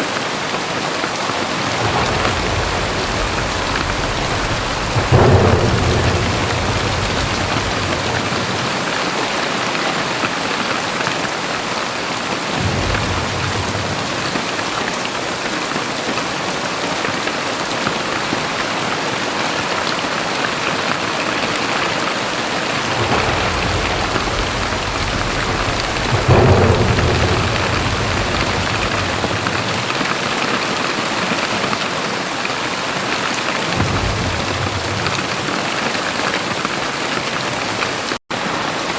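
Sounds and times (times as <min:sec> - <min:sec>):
heavy rain pouring: 0:00.0 - 0:38.9
deep rumble: 0:01.5 - 0:09.0, 0:12.6 - 0:15.0, 0:22.4 - 0:30.6, 0:33.7 - 0:38.0.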